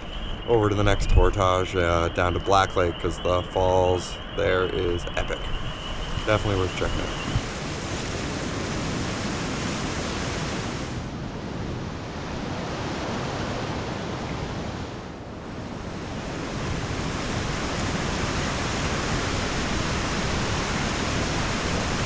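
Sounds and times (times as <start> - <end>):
waterfall rushing water: 16.0 - 22.0.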